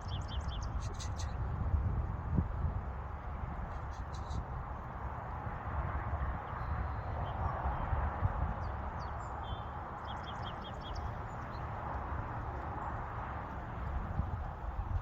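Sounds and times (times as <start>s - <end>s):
small birds chirping: 0.0s - 1.5s, 3.6s - 4.9s, 8.5s - 13.6s.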